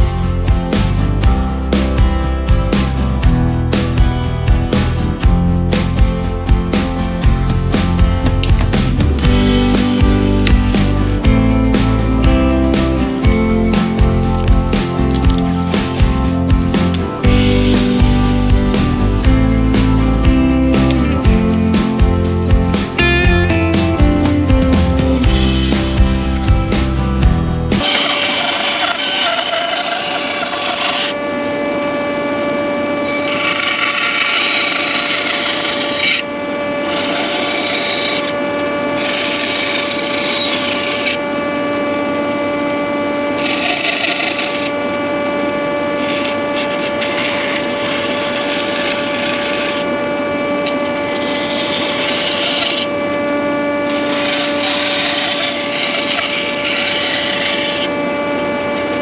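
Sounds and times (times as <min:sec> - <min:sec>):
saw rasping through wood: 0:27.8 - 0:31.2, 0:33.2 - 0:38.4, 0:39.0 - 0:41.2, 0:43.4 - 0:44.7, 0:46.0 - 0:49.9, 0:50.7 - 0:52.9, 0:53.9 - 0:57.9
electric saw humming: 0:33.0 - 0:59.0.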